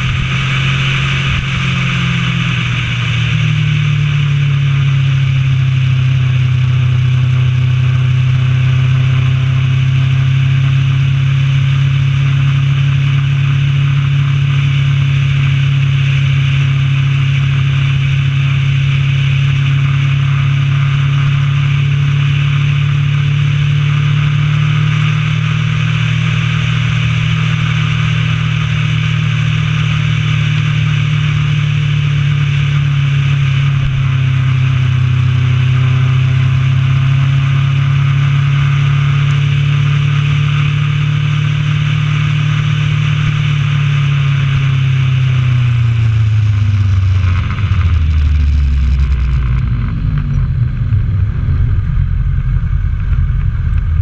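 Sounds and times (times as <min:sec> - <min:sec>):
wind rush: 0:00.0 - 0:05.3, 0:18.6 - 0:36.4, 0:43.0 - 0:54.0
motorcycle engine cruising: 0:00.0 - 0:54.0.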